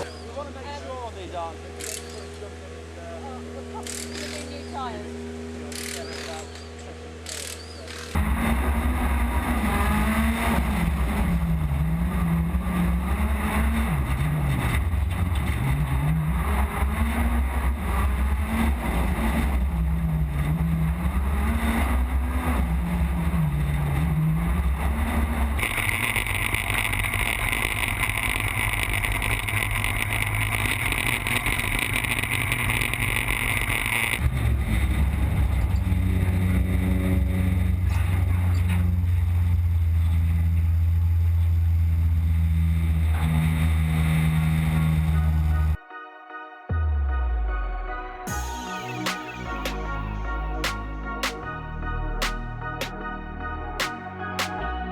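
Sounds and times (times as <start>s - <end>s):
rally car engine revving: 3.6s - 45.8s.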